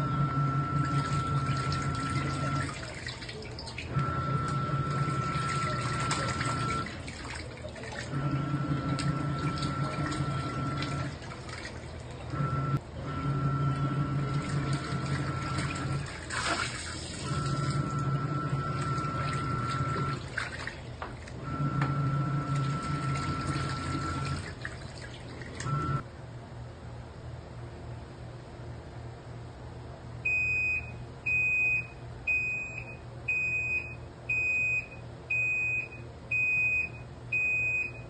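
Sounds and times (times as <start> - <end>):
washing machine motor humming: 0.0 - 26.0, 30.2 - 38.0
water sloshing: 0.8 - 12.6, 14.3 - 26.0
water splash: 1.0 - 3.9, 5.2 - 8.2, 14.4 - 17.8, 18.8 - 21.4.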